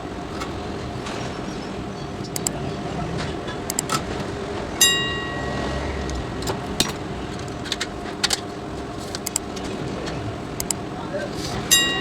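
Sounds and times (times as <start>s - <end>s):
steady background noise: 0.0s - 12.0s
tools clicking and tapping: 2.3s - 2.6s, 3.7s - 4.0s, 9.1s - 9.6s.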